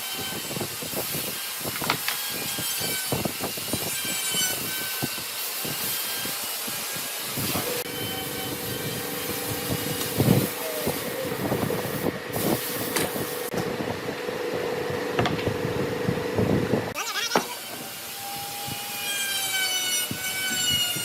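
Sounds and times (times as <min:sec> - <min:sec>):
power tool motor running: 0:06.0 - 0:13.6.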